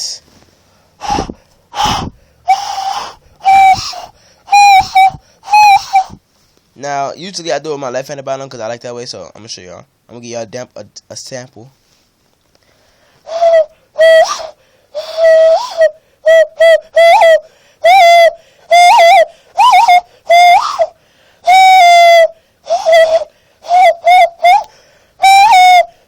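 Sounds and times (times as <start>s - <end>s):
hand whistle hooting notes: 1.0s - 6.2s, 13.3s - 26.0s.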